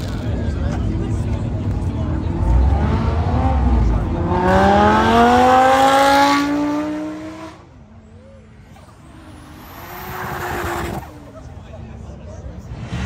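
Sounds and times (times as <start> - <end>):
sports car accelerating past: 2.2 - 7.7.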